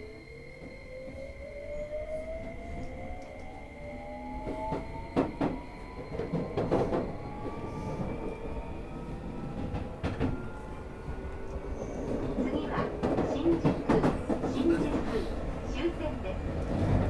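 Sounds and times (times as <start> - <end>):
train wheels clicking on track: 11.4 - 17.0.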